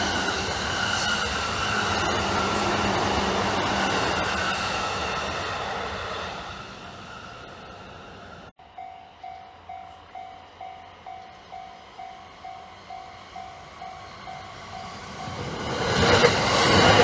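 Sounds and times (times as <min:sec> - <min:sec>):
train running past: 0:00.0 - 0:17.0
level-crossing warning bell: 0:08.6 - 0:15.7.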